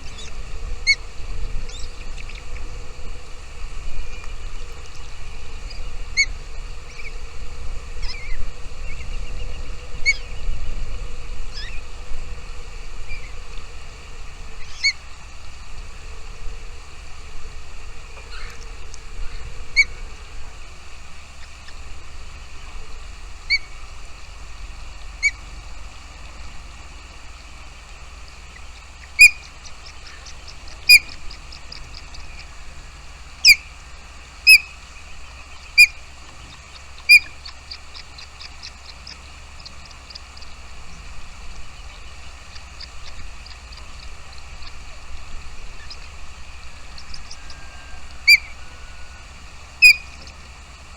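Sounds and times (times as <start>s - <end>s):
low rumble: 0.0s - 50.9s
bird sharp call notes: 49.8s - 50.3s.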